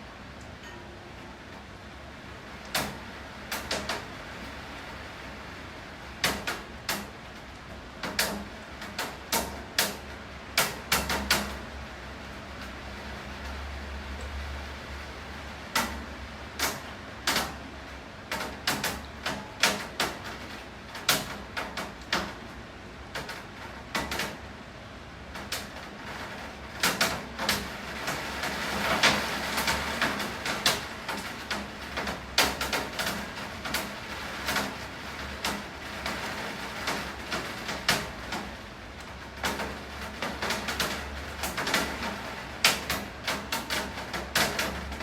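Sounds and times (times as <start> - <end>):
hiss of rainfall: 0.0 - 45.0
large raindrops knocking on hard surface: 2.6 - 4.1, 6.2 - 13.6, 15.6 - 24.5, 25.3 - 45.0.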